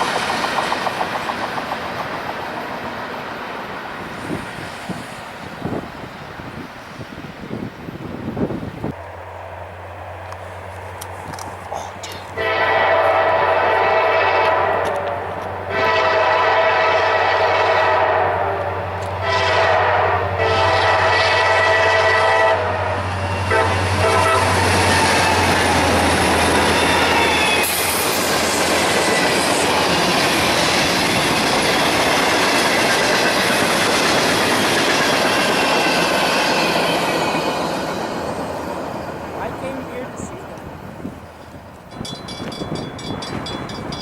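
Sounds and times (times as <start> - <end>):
train wheels clickety-clack: 0.0 - 3.4, 23.1 - 39.2, 41.7 - 44.0
diesel locomotive horn blasts: 12.4 - 25.9.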